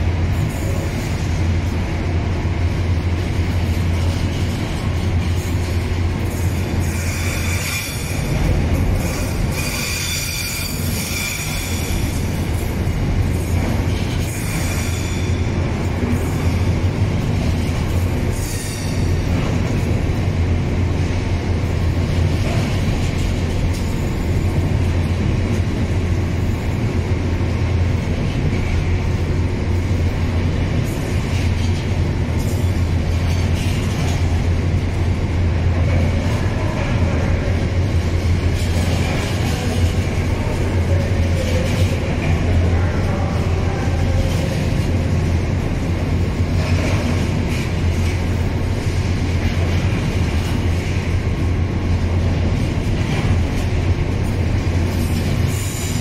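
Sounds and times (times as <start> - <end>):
train wheels rumbling on rail: 0.0 - 56.0
high-pitched wheel squeal: 9.5 - 12.1.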